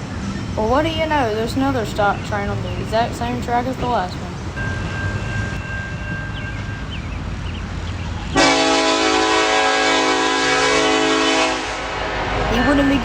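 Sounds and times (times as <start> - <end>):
low rumble of train engines: 0.0 - 13.0
locomotive air horn blast: 8.4 - 12.6.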